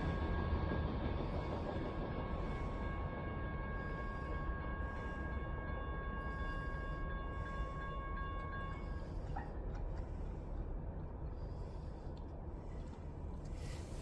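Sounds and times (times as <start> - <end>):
high-pitched ringing tone: 0.0 - 9.6
train rumbling past: 0.0 - 14.0.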